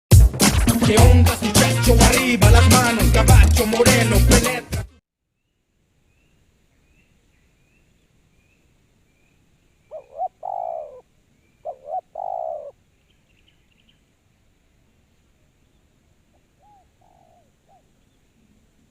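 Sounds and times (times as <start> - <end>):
faint high bird chirping: 5.3 - 14.2, 15.5 - 18.7
dove cooing: 9.9 - 12.8, 16.5 - 18.0.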